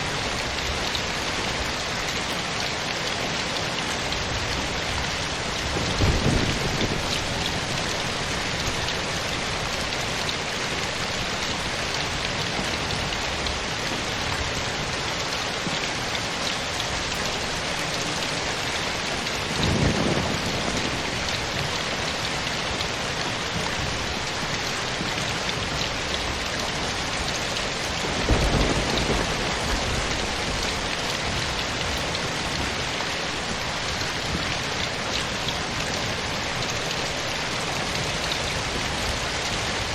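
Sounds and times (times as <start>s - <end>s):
steady rain falling: 0.0s - 39.9s
distant thunder rumbles: 5.7s - 8.4s, 28.0s - 32.8s.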